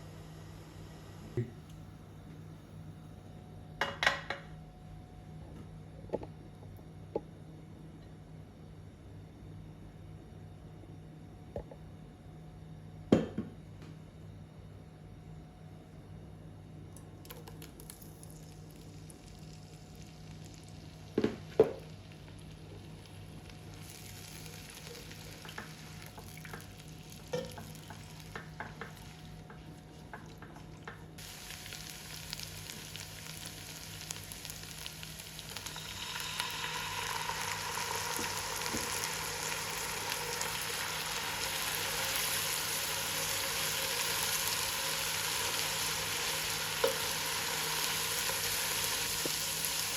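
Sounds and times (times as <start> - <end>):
food sizzling in oil: 18.2 - 49.9.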